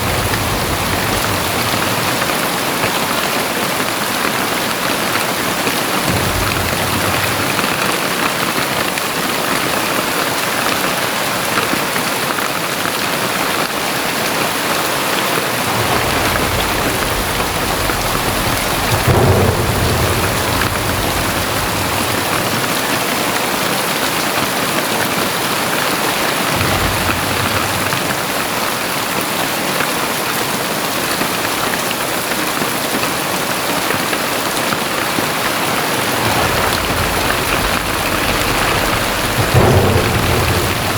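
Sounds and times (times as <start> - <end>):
thunder rumbling: 0.0 - 9.9, 15.2 - 23.8, 25.2 - 29.2, 34.8 - 40.9
heavy rain pouring: 0.0 - 40.9.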